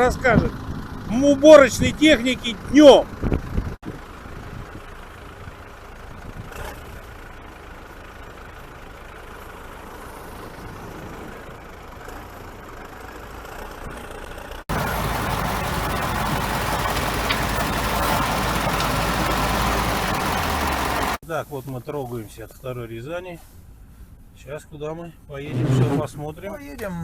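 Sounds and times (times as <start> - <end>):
vehicle engine noise: 0.0 - 21.2.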